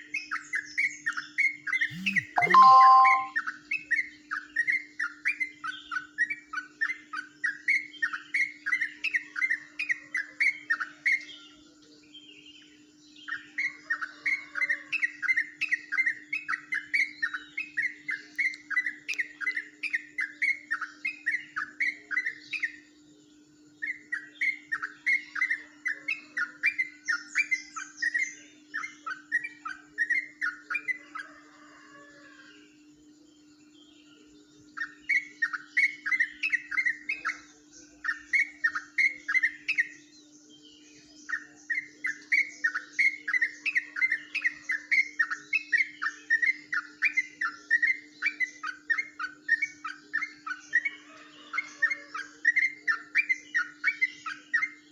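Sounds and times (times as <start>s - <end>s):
bird singing fast chirping notes: 1.8s - 3.3s.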